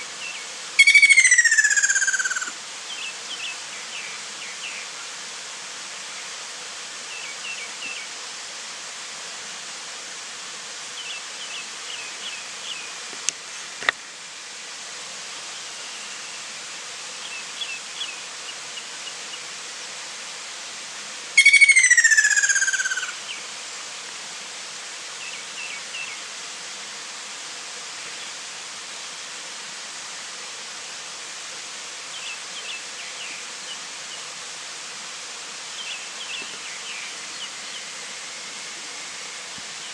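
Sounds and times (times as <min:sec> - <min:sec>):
insects hissing: 0:00.0 - 0:39.9
kingfisher falling trilled call: 0:00.8 - 0:02.5, 0:21.4 - 0:23.2.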